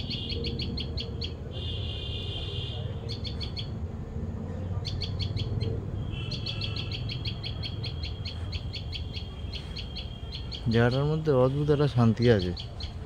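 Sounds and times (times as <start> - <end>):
small bird chirping: 0.0 - 1.4, 3.0 - 3.8, 4.8 - 13.0.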